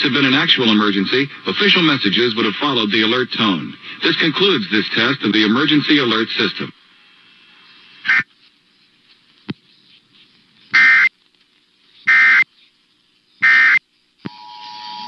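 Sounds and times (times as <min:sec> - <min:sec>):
buzzy digital data bursts: 0:07.5 - 0:08.3, 0:10.7 - 0:11.1, 0:12.0 - 0:12.5, 0:13.4 - 0:13.9.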